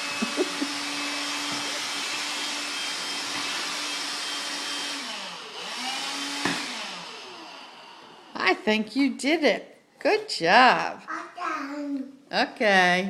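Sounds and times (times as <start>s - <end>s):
vacuum cleaner motor running: 0.0s - 8.5s.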